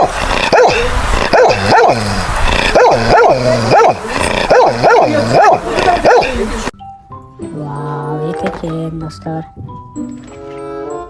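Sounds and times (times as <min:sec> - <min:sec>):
dog barking: 0:00.0 - 0:06.6.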